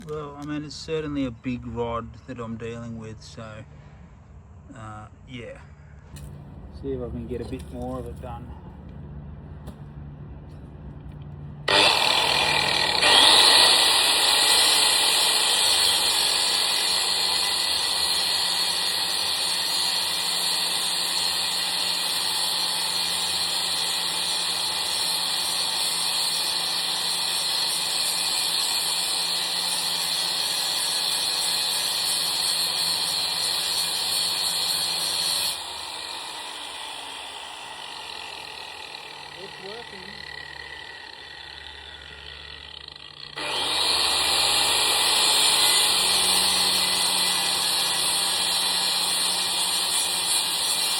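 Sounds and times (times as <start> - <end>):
angle grinder cutting steel: 11.6 - 50.9.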